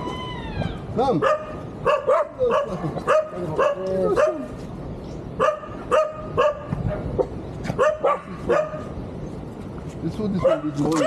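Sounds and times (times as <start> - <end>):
dog barking: 1.2 - 4.6, 5.4 - 9.0, 10.4 - 11.0.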